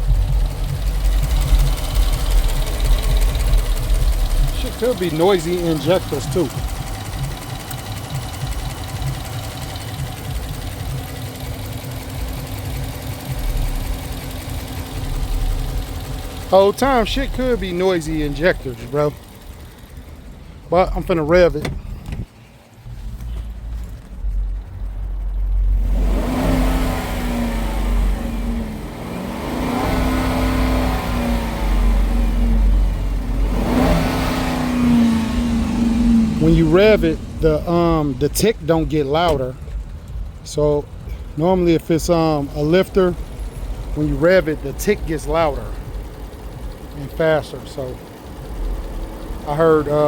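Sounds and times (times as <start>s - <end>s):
car engine idling: 0.0s - 50.0s
light engine ticking: 0.0s - 50.0s.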